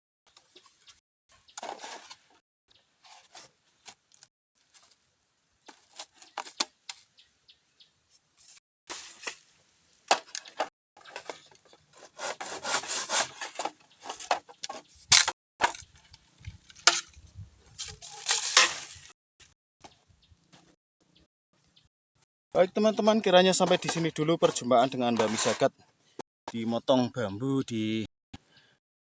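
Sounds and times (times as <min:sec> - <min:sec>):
bamboo crackling and snapping: 0:17.8 - 0:19.6.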